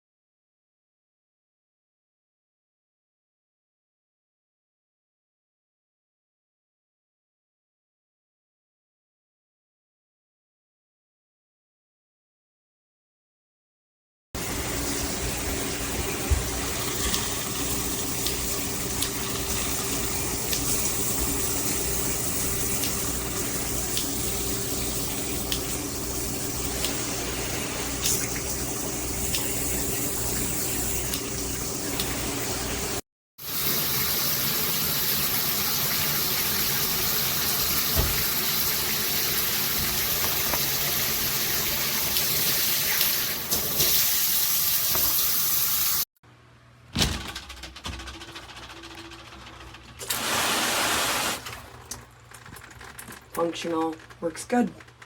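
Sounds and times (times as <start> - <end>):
shower water spraying: 14.4 - 46.1, 50.0 - 52.0.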